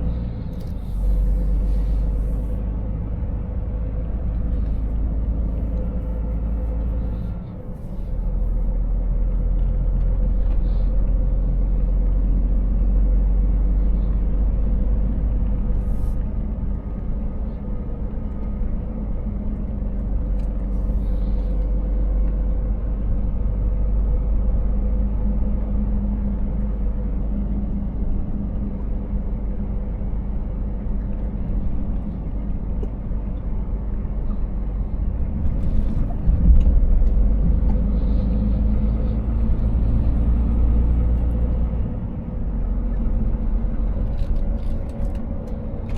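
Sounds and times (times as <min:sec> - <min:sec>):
diesel engine drone: 0:00.0 - 0:45.9
road rumble: 0:00.0 - 0:45.9.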